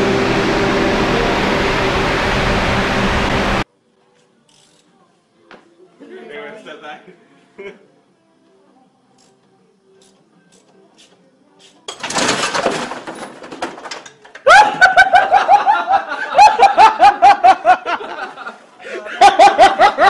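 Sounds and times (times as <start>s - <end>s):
loud burst of noise: 0.0s - 3.6s
loud rapid laughter: 14.4s - 20.0s.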